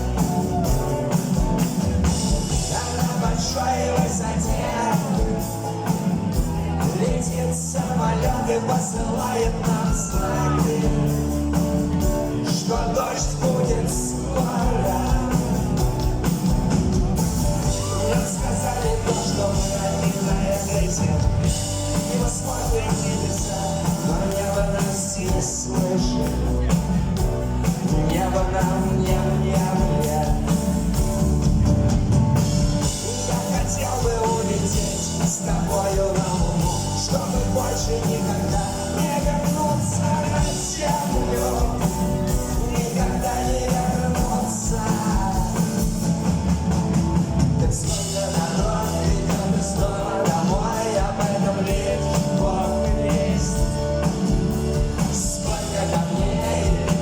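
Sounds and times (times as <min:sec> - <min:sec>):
rock band playing live: 0:00.0 - 0:57.0
person singing: 0:02.5 - 0:16.2, 0:17.6 - 0:26.9, 0:32.8 - 0:46.0, 0:47.8 - 0:57.0.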